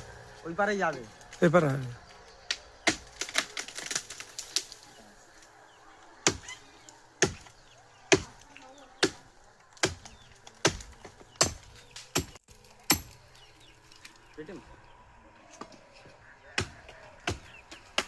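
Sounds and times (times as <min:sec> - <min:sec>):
blade chopping wood: 0:09.8 - 0:13.2.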